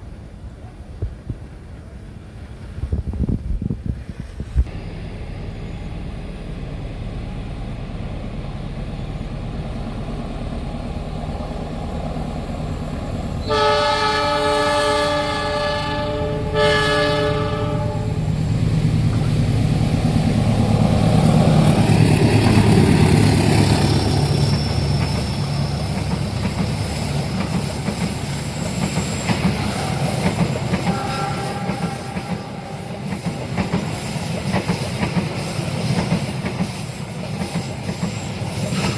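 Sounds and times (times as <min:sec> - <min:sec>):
train rumbling past: 0:00.0 - 0:38.9
train horn blasts: 0:13.4 - 0:18.2, 0:30.8 - 0:33.0.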